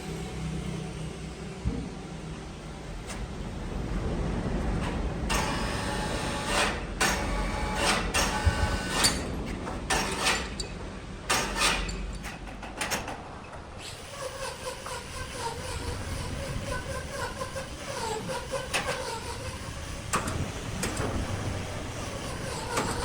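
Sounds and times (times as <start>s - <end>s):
wood lathe motor humming: 13.8s - 20.1s, 22.0s - 23.0s
turning tool scraping wood: 22.1s - 23.0s.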